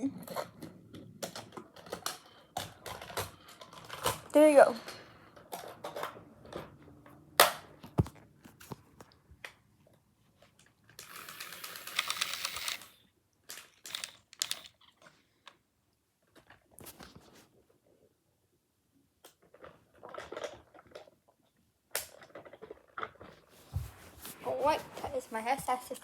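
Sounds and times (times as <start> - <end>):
plastic toys clicking and knocking: 0.1 - 6.8, 10.6 - 15.6
rustling scrape: 23.4 - 26.0.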